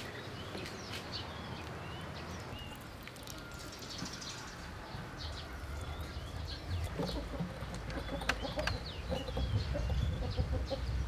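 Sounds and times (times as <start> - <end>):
outdoor background noise: 0.0 - 11.0
small birds chirping: 0.0 - 11.0.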